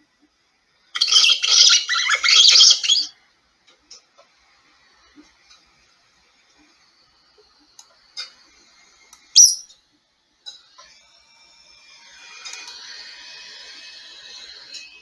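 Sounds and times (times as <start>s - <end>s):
mouse squeak: 1.0s - 3.1s, 9.4s - 9.7s.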